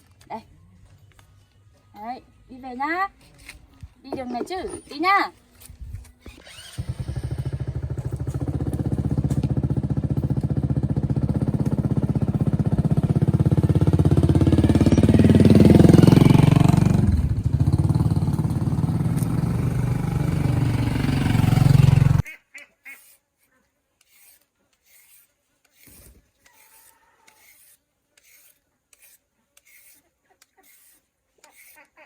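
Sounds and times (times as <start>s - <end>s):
small motorbike engine running: 6.2s - 22.2s.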